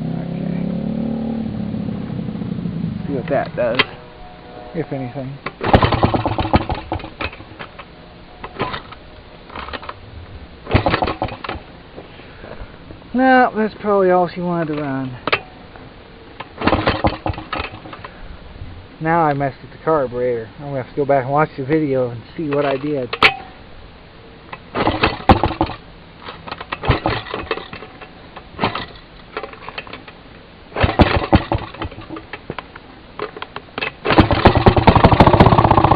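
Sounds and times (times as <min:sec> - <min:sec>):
two-stroke engine popping sporadically: 0:05.4 - 0:09.8, 0:10.6 - 0:11.7, 0:16.4 - 0:18.0, 0:24.5 - 0:25.8, 0:26.5 - 0:29.9, 0:30.8 - 0:35.9.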